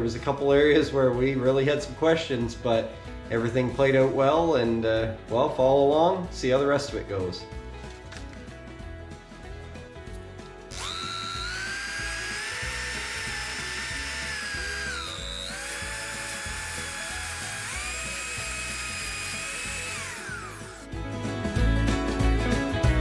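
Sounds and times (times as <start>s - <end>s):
background music: 0.0s - 23.0s
power tool motor whine: 10.7s - 20.9s.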